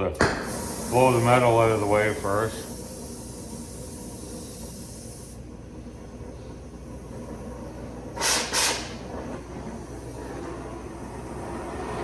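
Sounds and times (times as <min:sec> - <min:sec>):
cutting torch hissing: 0:00.2 - 0:05.5, 0:08.0 - 0:09.1.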